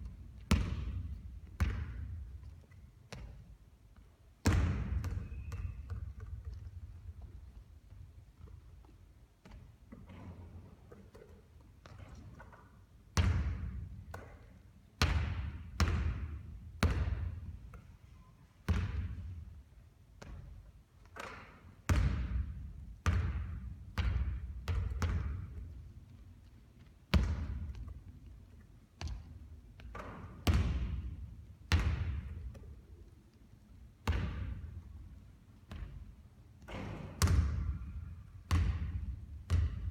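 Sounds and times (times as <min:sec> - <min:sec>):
basketball bouncing on hard court: 0:00.4 - 0:02.5, 0:04.4 - 0:07.2, 0:13.2 - 0:14.4, 0:15.0 - 0:17.8, 0:18.7 - 0:19.4, 0:21.1 - 0:25.8, 0:27.1 - 0:27.9, 0:29.0 - 0:32.7, 0:34.0 - 0:34.8, 0:35.7 - 0:39.9.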